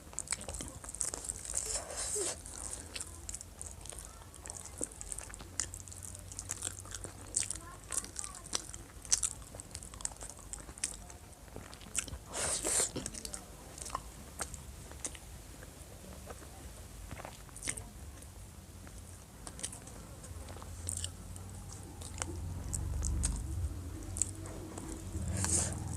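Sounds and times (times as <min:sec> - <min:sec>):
person chewing: 0:00.0 - 0:15.3, 0:17.1 - 0:17.9, 0:18.8 - 0:25.9
low rumble: 0:20.5 - 0:25.9.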